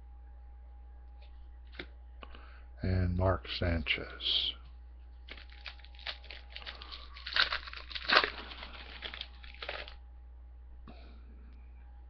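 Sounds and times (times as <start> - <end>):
plastic wrapper crinkling and tearing: 5.2 - 10.0.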